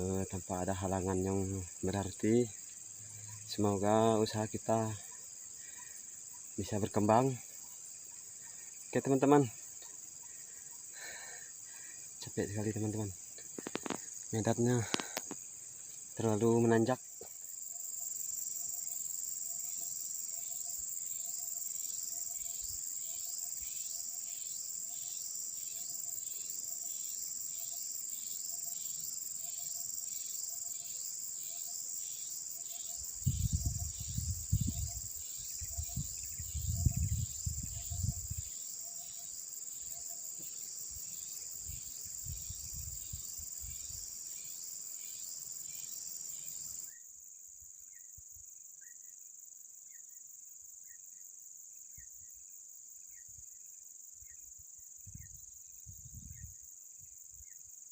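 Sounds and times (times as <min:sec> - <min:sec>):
faint chirps: 0:00.0 - 0:47.0
insects trilling: 0:00.0 - 0:57.9
wind rumbling on microphone: 0:33.2 - 0:38.5, 0:41.7 - 0:43.8, 0:55.1 - 0:56.6.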